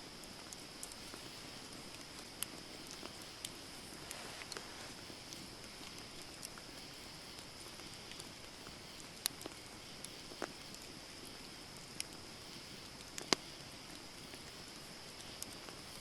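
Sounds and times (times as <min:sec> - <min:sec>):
campfire hissing: 0:00.0 - 0:16.0
wood crackling and popping: 0:00.0 - 0:16.0.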